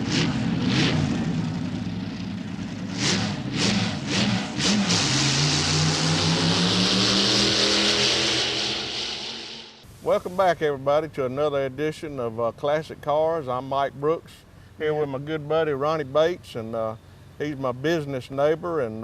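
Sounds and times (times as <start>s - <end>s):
engine revving: 0.0s - 9.8s
strong hiss: 9.2s - 10.9s.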